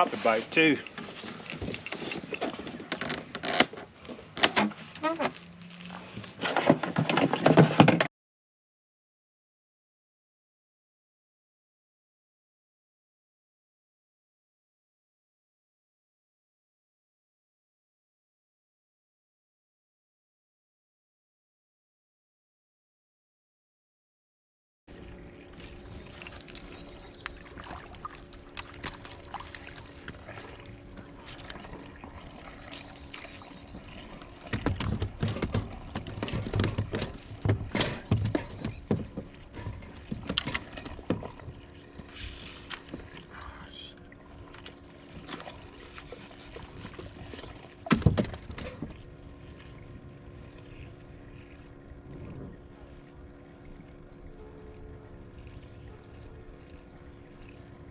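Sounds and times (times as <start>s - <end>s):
water splashing and sloshing: 0.0s - 8.1s, 24.9s - 57.9s
steady low hum: 24.9s - 57.9s.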